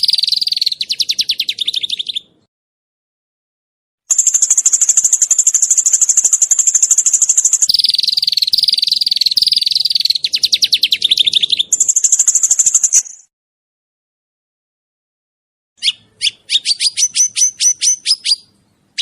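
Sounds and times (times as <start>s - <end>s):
songbird rapid trill: 0.0s - 2.4s, 4.1s - 13.3s, 15.8s - 19.0s.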